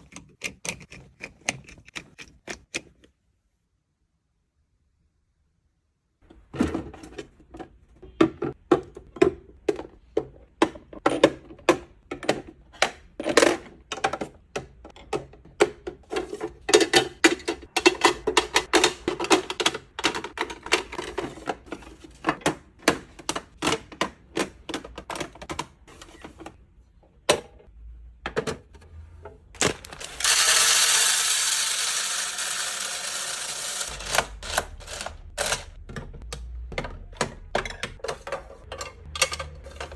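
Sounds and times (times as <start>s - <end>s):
plastic and glass items clacking: 33.8s - 39.9s.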